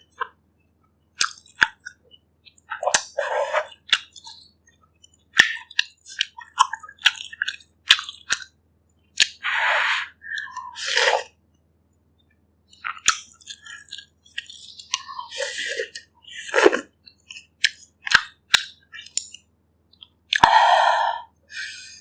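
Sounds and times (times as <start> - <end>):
chewing and wet mouth noises: 1.2 - 9.4, 12.7 - 20.6.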